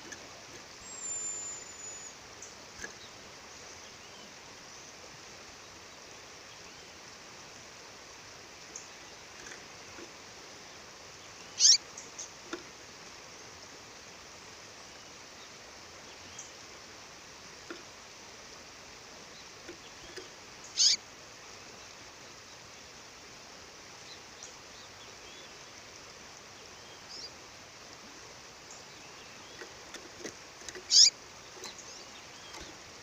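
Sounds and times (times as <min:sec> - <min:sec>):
bird calling: 0:00.8 - 0:02.2, 0:11.5 - 0:11.8, 0:20.0 - 0:21.0, 0:30.7 - 0:32.8.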